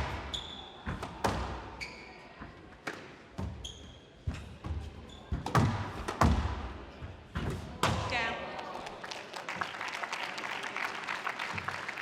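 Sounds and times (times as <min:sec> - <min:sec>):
shoes squeaking on court floor: 0:00.0 - 0:07.7
squash ball cracking off walls: 0:05.4 - 0:06.7.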